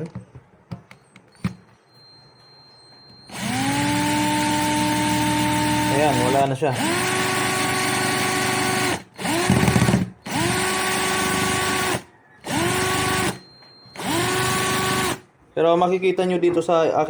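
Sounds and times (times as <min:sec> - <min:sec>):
power drill whining: 0:02.3 - 0:15.3.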